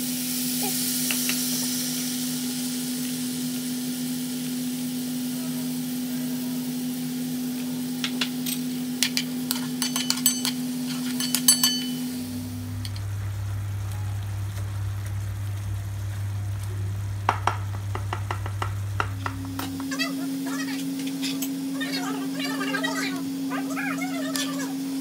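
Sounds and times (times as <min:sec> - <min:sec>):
vegetables sizzling in a pan: 0:00.0 - 0:25.0
low hum: 0:11.1 - 0:24.0.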